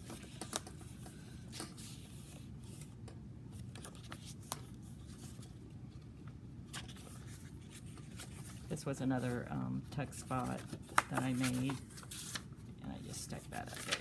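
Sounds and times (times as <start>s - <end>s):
paper pages rustling: 3.6s - 6.1s, 6.7s - 14.0s.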